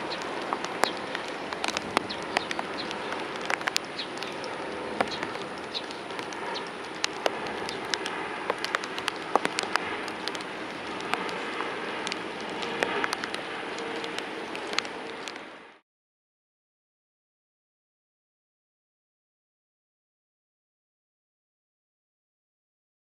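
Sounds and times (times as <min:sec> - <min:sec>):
rain falling: 0:00.0 - 0:15.8.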